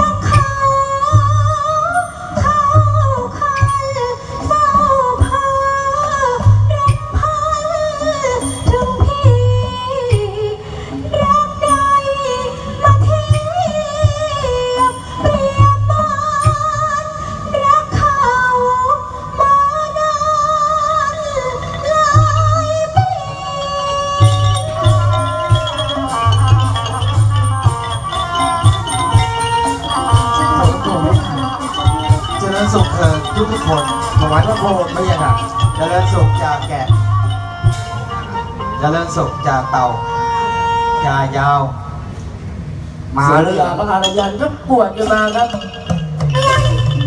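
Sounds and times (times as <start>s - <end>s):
low drum beat: 0.0s - 1.6s, 24.2s - 38.3s
person singing ornamented melody: 20.4s - 40.1s
band accompaniment: 23.9s - 40.8s, 44.0s - 47.0s.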